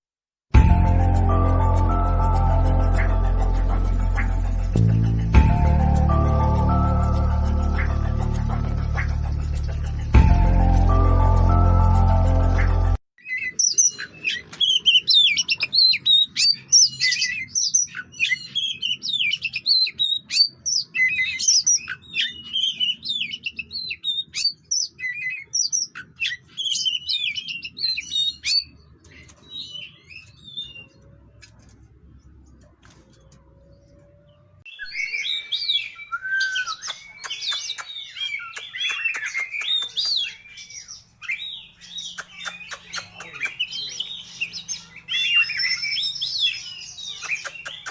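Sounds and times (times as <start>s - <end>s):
bird singing whistles and chatters: 34.7s - 47.9s.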